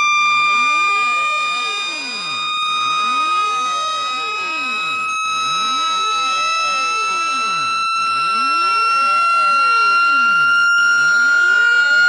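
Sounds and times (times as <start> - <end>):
steady high electronic tone: 0.0 - 12.0
sweeping electronic tones: 0.0 - 12.0.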